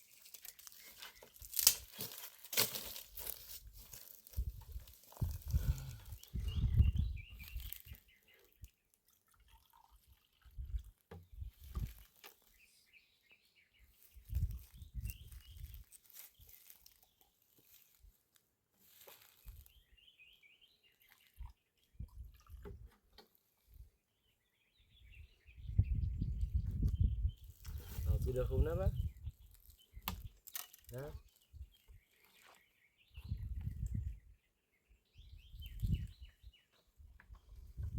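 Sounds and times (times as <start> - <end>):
birds chirping: 4.0 - 8.7, 24.2 - 37.0.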